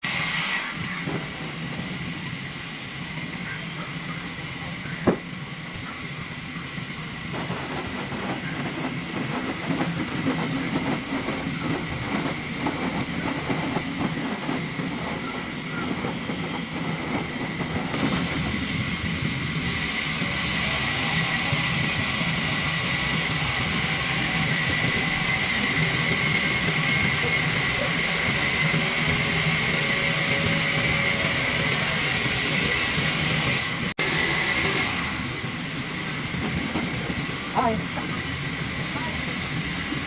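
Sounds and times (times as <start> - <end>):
saw cutting a log: 19.6 - 35.2.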